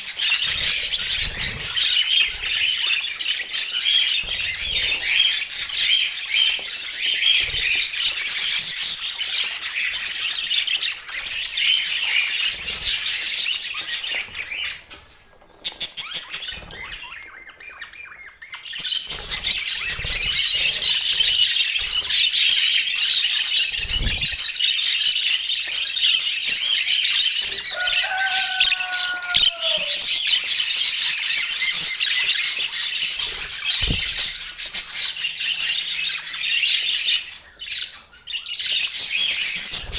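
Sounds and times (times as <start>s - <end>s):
budgerigars chattering: 26.0s - 30.7s, 31.5s - 39.9s.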